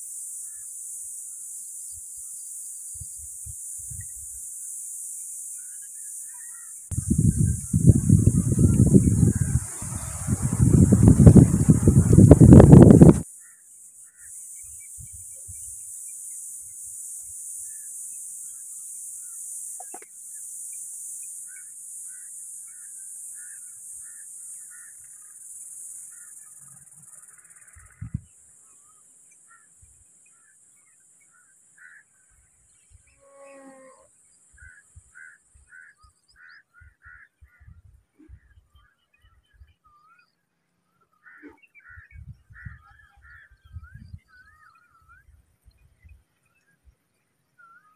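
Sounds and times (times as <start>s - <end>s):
steady high hiss: 0.0s - 32.9s
small birds chirping: 0.4s - 33.2s.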